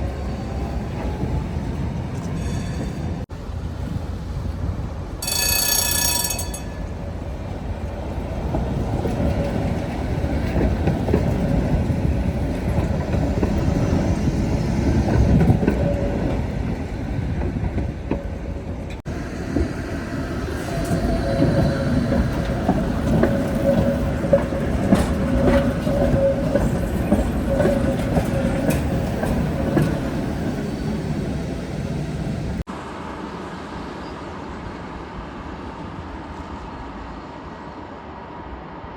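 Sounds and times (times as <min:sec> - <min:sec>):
tram wheels rumbling on rails: 0:00.0 - 0:38.9
high ringing tone: 0:02.3 - 0:03.2, 0:05.2 - 0:07.0.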